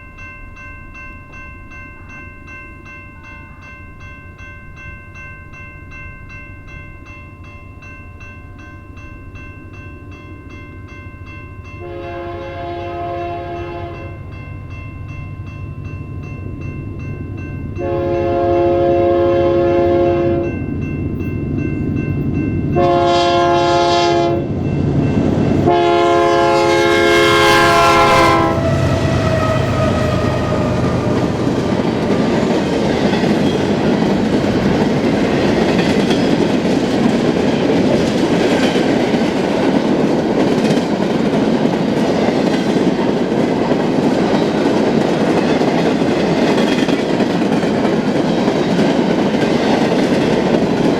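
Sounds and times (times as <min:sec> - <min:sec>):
locomotive air horn blasts: 0:11.8 - 0:14.2, 0:17.8 - 0:20.6, 0:22.8 - 0:24.5, 0:25.7 - 0:31.6.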